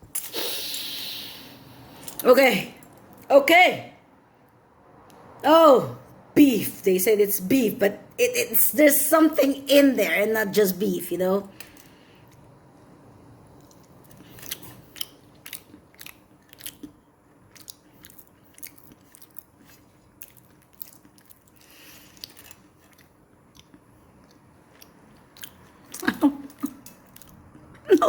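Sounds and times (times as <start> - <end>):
person chewing: 13.6 - 27.9.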